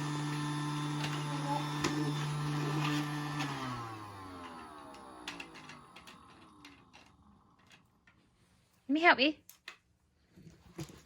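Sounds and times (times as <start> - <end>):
toy vacuum motor humming: 0.0 - 7.8.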